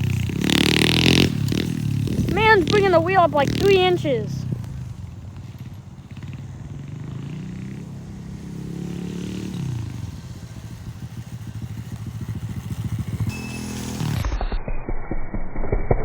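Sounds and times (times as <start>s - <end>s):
mini bike engine revving: 0.0s - 14.3s.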